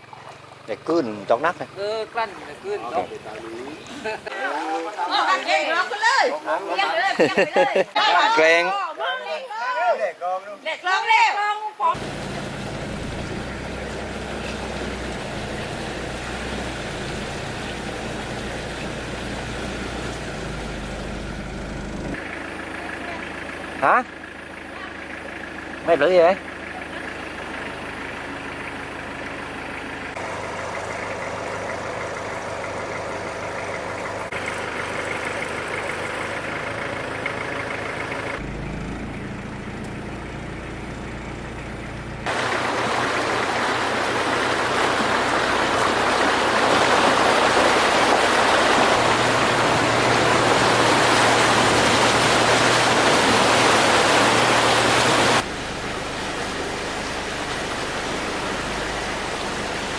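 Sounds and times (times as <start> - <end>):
rushing floodwater: 0.0 - 8.7, 11.9 - 22.2, 42.2 - 59.9
motor engine humming: 12.0 - 59.9.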